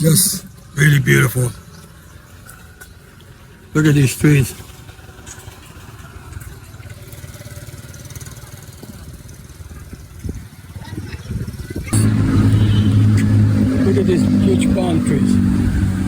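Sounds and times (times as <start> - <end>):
vehicle engine rumbling: 11.8 - 16.0
loud steady engine hum: 11.9 - 16.0.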